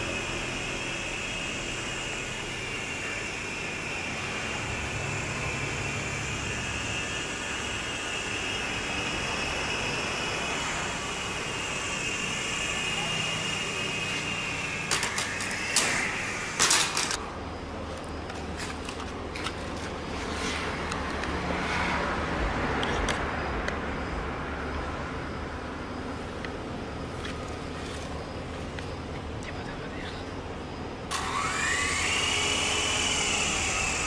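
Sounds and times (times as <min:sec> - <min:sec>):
small electric motor whine: 0:00.0 - 0:17.3, 0:18.0 - 0:23.3, 0:30.4 - 0:34.0
low hum with ticks: 0:16.6 - 0:31.2.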